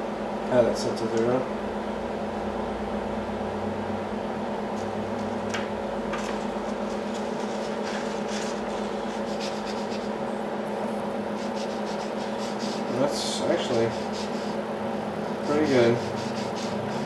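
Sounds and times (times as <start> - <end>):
lathe humming: 4.6 - 17.0.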